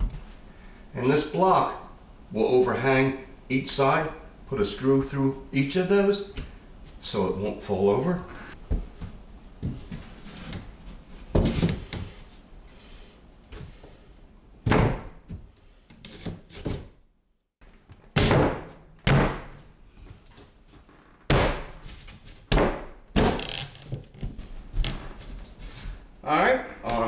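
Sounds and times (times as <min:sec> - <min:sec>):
wooden knocks and thunks: 0:14.6 - 0:15.5, 0:18.2 - 0:19.7, 0:21.3 - 0:25.1.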